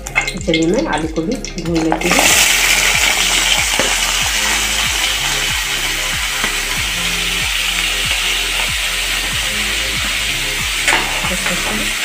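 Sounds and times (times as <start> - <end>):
background music with beat: 0.0 - 12.0
potatoes sizzling in hot oil: 0.0 - 12.0.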